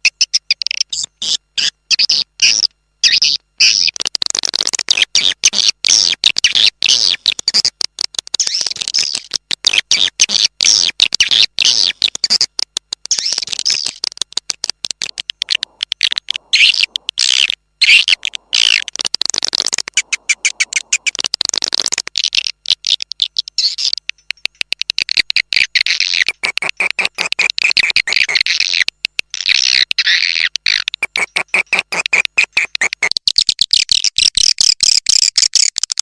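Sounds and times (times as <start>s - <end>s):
swiftlets twittering: 11.2s - 26.4s.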